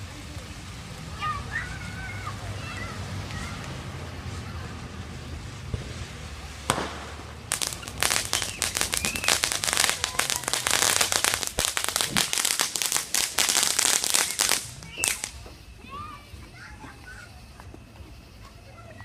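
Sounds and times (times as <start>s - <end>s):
rapid crackling firework pops: 0.0s - 18.7s
firework bang: 4.3s - 15.6s.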